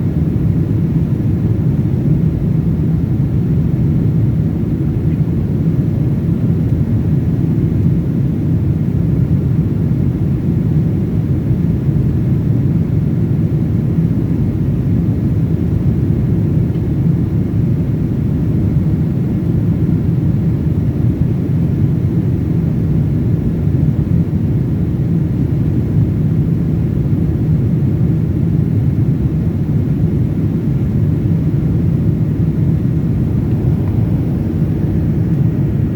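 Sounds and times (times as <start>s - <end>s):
airliner cabin drone: 29.5s - 35.9s.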